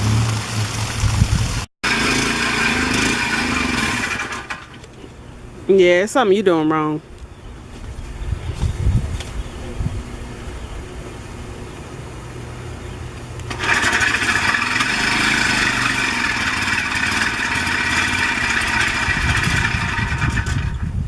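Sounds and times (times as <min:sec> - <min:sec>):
low steady hum: 0:04.6 - 0:13.6
small motor whining: 0:13.4 - 0:20.9.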